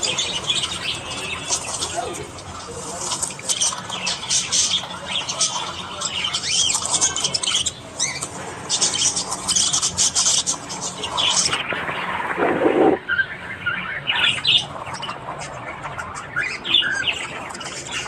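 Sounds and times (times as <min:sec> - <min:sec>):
budgerigars chattering: 0:00.0 - 0:18.0.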